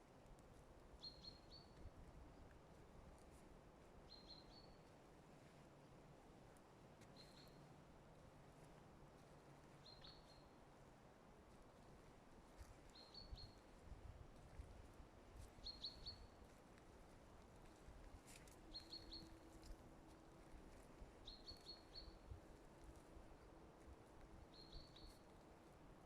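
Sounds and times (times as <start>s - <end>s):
outdoor background noise: 0.0s - 26.0s
songbird high-pitched call: 9.8s - 10.4s, 15.6s - 16.3s, 18.7s - 19.3s, 24.5s - 25.1s.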